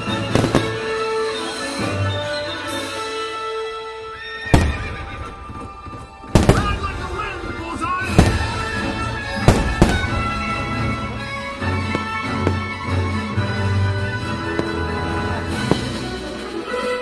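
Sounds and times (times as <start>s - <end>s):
firework bangs: 0.0s - 1.2s, 4.4s - 16.8s
show music: 0.0s - 17.0s.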